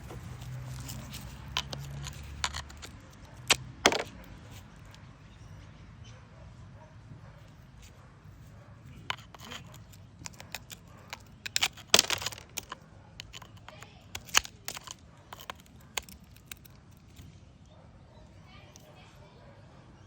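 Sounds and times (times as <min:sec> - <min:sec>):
brittle material cracking apart: 0:09.1 - 0:17.2.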